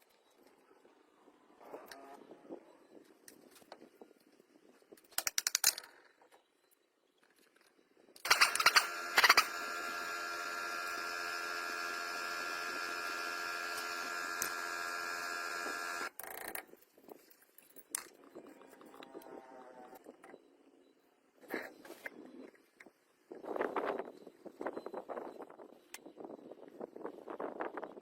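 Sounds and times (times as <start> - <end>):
machinery clicking: 8.2 - 16.1
small motor running: 8.3 - 16.2.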